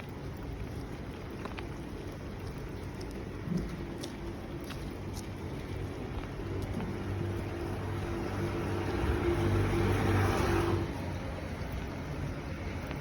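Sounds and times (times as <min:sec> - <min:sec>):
steady rain: 0:00.0 - 0:13.0
vehicle passing: 0:06.4 - 0:13.0.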